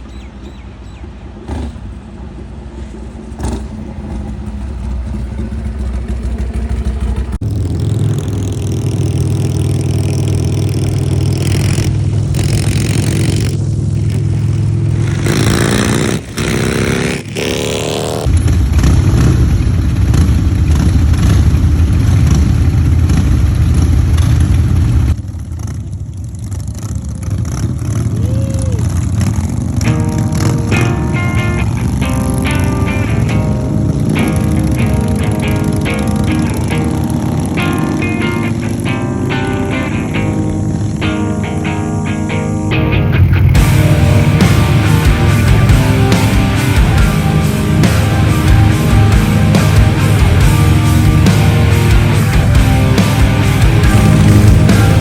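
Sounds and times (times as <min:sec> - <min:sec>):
motorcycle engines running: 0:00.0 - 0:55.0.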